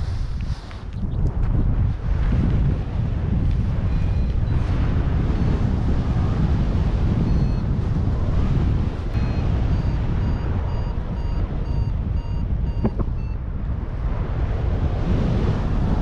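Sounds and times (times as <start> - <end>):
wind rushing over microphone: 0.0 - 16.0
variometer high beeps: 3.9 - 4.6, 7.2 - 7.6, 9.2 - 13.4.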